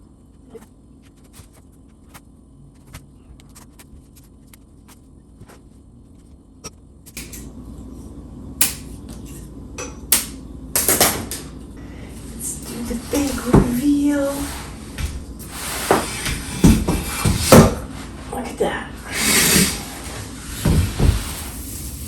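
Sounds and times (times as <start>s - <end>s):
rustling handling noise: 0.4s - 6.5s.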